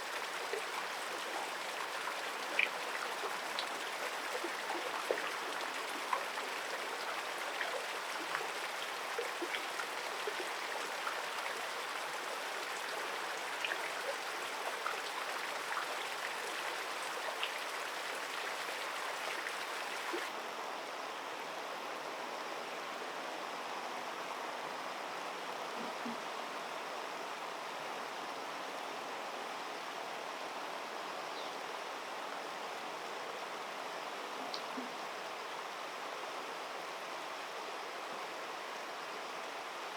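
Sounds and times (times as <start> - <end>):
shallow river running: 0.0 - 20.4
small water splashes and drips: 0.0 - 20.4.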